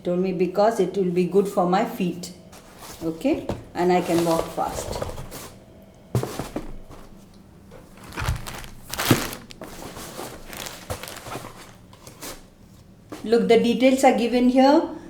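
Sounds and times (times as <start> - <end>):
soft packaging rustling: 2.5 - 5.6, 6.2 - 13.3.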